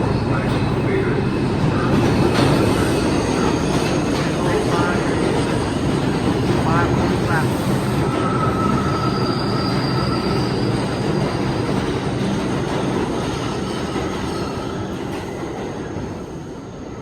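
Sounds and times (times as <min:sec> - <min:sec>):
train wheels rumbling on rail: 0:00.0 - 0:17.0
high wheel squeal: 0:07.4 - 0:12.0.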